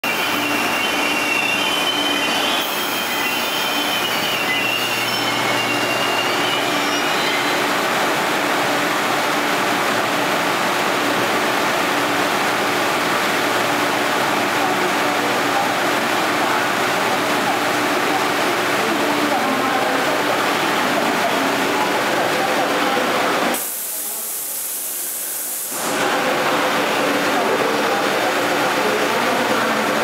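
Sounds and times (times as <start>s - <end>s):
train wheels squealing: 0.0s - 7.8s
train running on rails: 0.0s - 30.0s.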